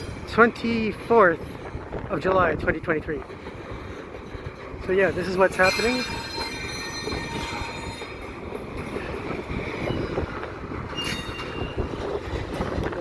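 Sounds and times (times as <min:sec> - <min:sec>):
freight cars rumbling: 0:00.0 - 0:13.0
high wheel squeal: 0:05.2 - 0:10.3, 0:10.9 - 0:12.0.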